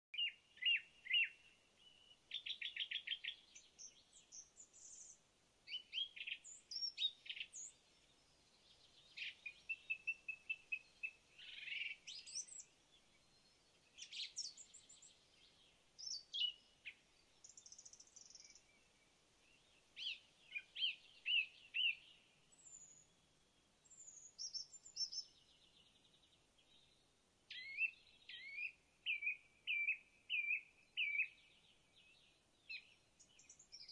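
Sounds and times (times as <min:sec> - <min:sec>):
songbirds singing and calling: 0:00.1 - 0:33.9.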